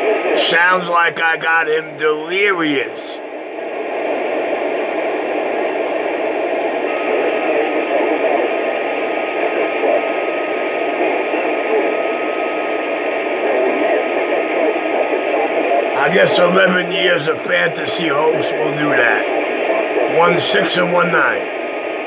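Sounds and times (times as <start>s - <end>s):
radio static hiss: 16.0s - 21.6s.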